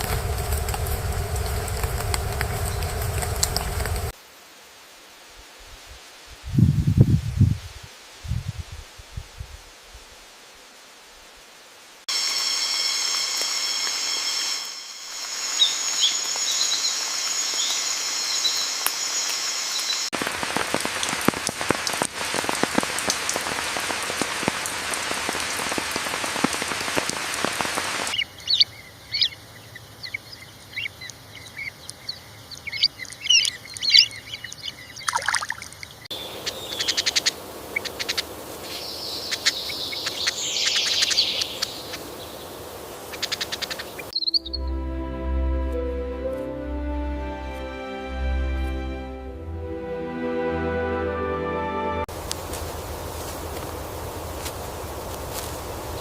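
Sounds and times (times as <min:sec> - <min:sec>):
rain-like hiss: 0:00.0 - 0:35.3, 0:35.9 - 0:44.2, 0:52.0 - 0:56.0
high-pitched insect buzz: 0:12.1 - 0:20.1
bird chirps: 0:28.2 - 0:42.5, 0:43.1 - 0:44.7.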